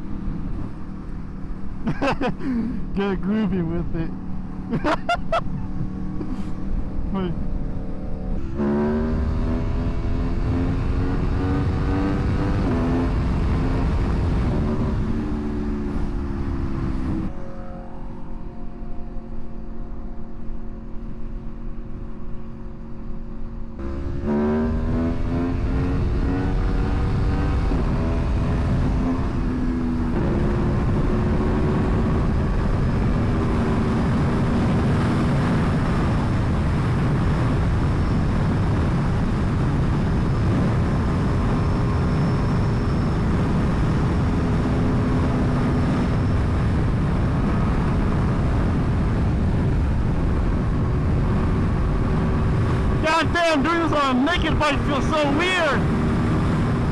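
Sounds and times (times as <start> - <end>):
motorcycle engine accelerating: 0.0 - 56.9
wind noise: 8.4 - 17.4, 23.8 - 56.9.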